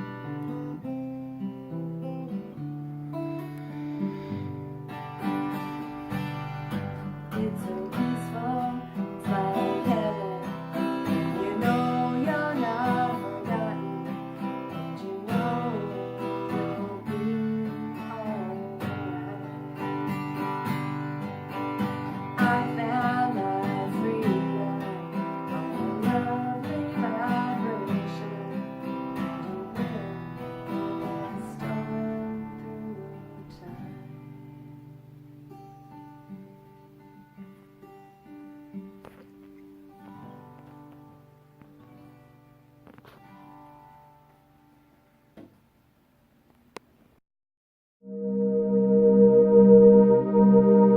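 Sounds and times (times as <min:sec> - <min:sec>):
strummed acoustic guitar music: 0:00.0 - 0:45.6.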